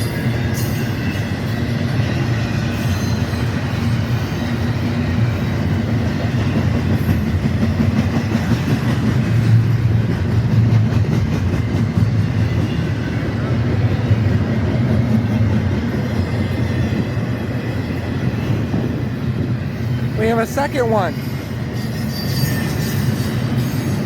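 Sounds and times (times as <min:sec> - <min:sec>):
freight train cars rolling past: 0:00.0 - 0:24.0.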